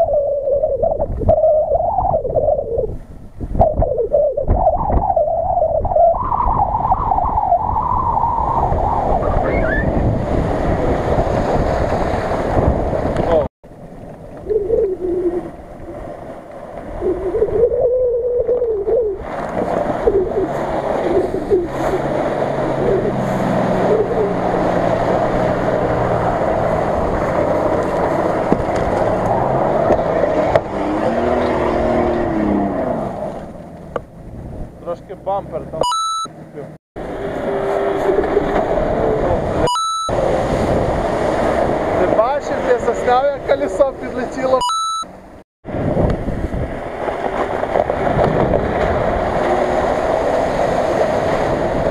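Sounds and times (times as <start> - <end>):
wind on microphone: 0.0 - 33.3, 37.0 - 44.4, 45.6 - 51.9
water spray rushing around wheels: 8.4 - 14.6, 15.4 - 17.3, 18.8 - 35.0, 37.0 - 44.5, 45.7 - 51.9
vehicle engine: 18.5 - 51.9
steady rushing noise: 37.0 - 44.5.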